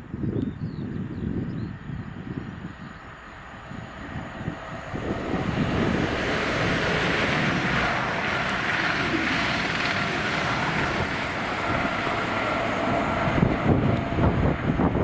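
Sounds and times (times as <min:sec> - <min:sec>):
train passing: 0:03.0 - 0:15.0.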